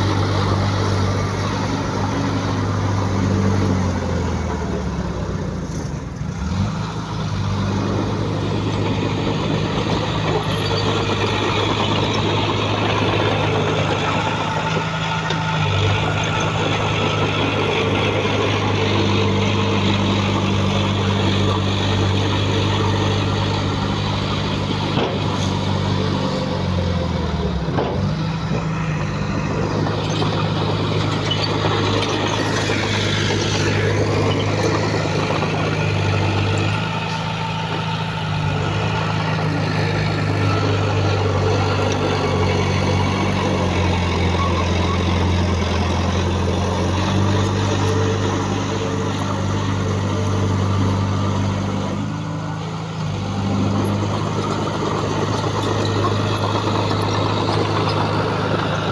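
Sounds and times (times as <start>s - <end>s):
heavy machinery engine running: 0.0s - 58.9s.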